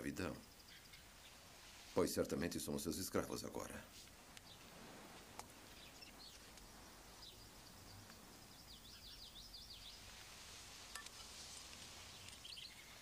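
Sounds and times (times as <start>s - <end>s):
low background hiss: 0.0s - 13.0s
faint bird twittering: 0.2s - 1.5s, 5.6s - 13.0s.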